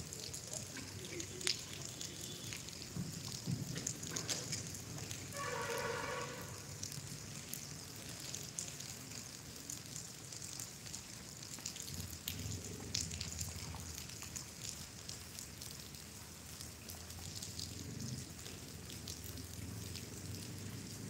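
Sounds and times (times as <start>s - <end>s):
raindrops ticking: 0.0s - 21.0s.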